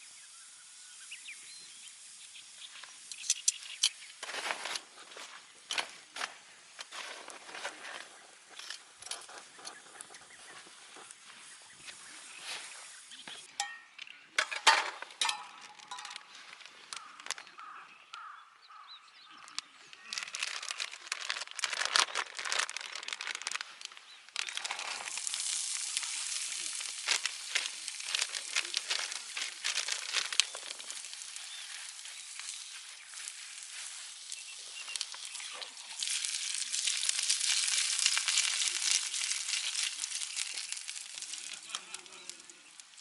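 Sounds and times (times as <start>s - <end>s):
food sizzling in a pan: 0.0s - 4.2s, 11.0s - 13.5s, 24.5s - 43.0s
crinkling and clicking handling: 14.0s - 18.2s, 19.3s - 43.0s.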